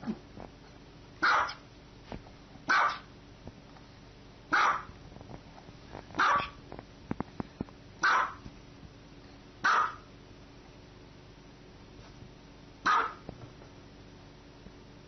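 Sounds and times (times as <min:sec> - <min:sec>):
small dog barking: 0:01.2 - 0:01.6, 0:02.7 - 0:03.1, 0:04.5 - 0:05.0, 0:06.2 - 0:06.6, 0:08.0 - 0:08.4, 0:09.6 - 0:10.1, 0:12.8 - 0:13.3.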